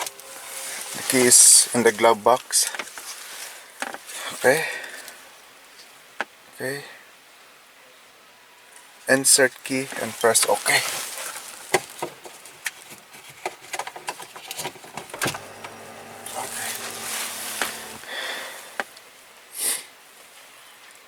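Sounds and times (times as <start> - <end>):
low steady hum: 15.2 - 18.2.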